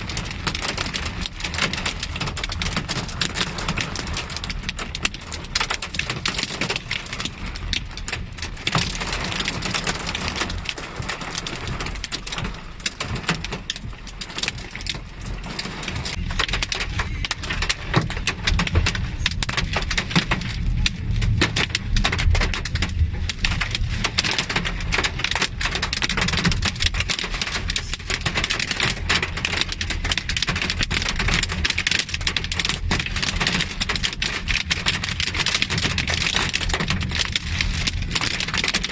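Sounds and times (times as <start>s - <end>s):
heavy rain patter: 0.0s - 38.9s
low rumble: 13.5s - 25.6s.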